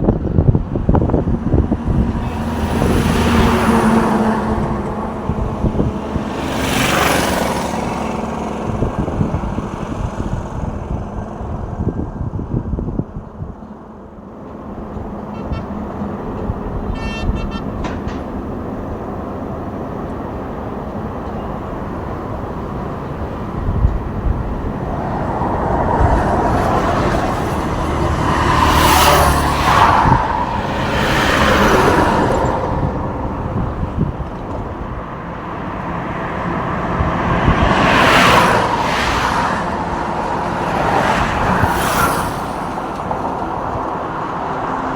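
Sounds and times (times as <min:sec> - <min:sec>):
trucks and cars passing: 0:00.0 - 0:44.9
horn toot: 0:15.2 - 0:18.2.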